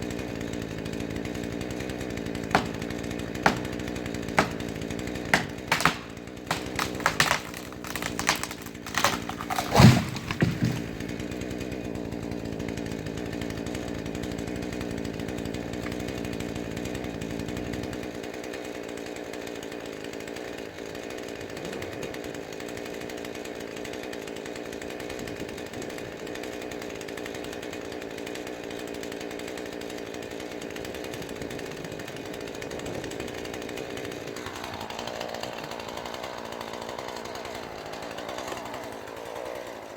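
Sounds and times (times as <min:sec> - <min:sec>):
chainsaw running: 0:00.0 - 0:39.9
sharp cracks and knocks: 0:02.0 - 0:11.6.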